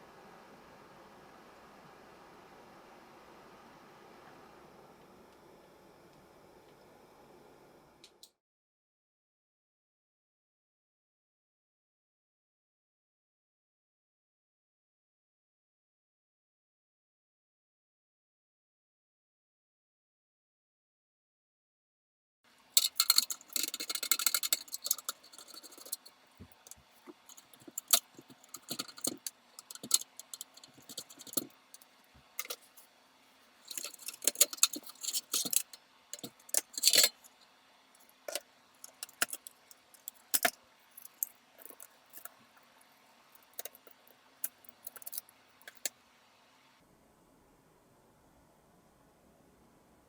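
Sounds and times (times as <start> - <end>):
metallic jingling: 22.8 - 31.5, 33.7 - 37.3
small metal parts clinking: 22.8 - 32.7, 33.6 - 37.4, 38.0 - 42.4, 43.4 - 45.9.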